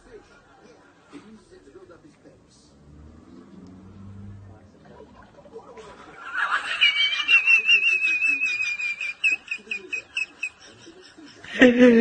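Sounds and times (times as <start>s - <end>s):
warbling whistle-like call: 6.7s - 10.0s.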